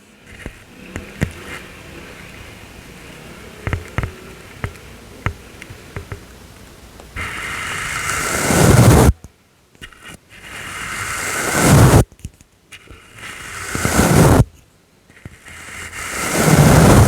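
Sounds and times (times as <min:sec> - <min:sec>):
brush tapping microphone: 0:00.2 - 0:06.4, 0:07.2 - 0:09.2, 0:09.8 - 0:12.2, 0:12.8 - 0:17.0
brush stroke on microphone: 0:07.2 - 0:09.1, 0:10.2 - 0:12.0, 0:13.1 - 0:14.5, 0:15.4 - 0:17.0.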